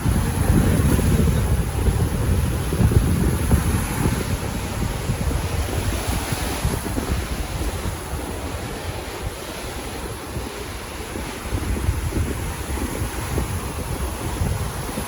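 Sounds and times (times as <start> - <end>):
sea surf washing: 0.0 - 15.0
wind buffeting microphone: 0.0 - 15.0.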